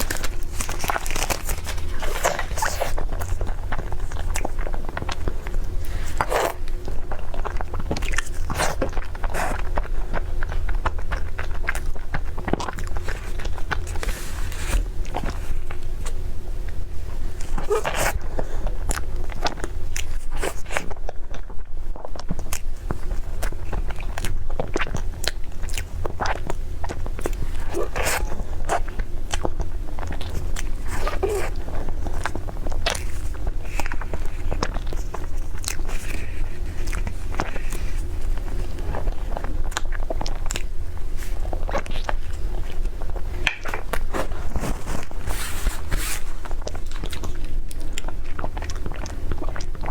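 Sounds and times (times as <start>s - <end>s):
person chewing crisp food: 0.0s - 49.9s
steady low hum: 0.0s - 49.9s.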